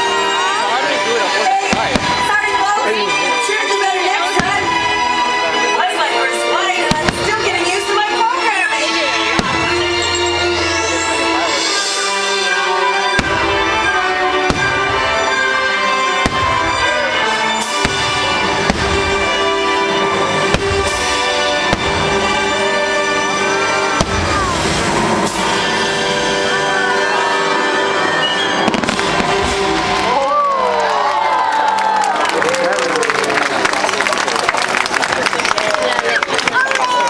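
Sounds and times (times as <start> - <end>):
fireworks banging: 1.6 - 5.3, 6.7 - 11.2, 13.0 - 27.3, 28.0 - 30.5.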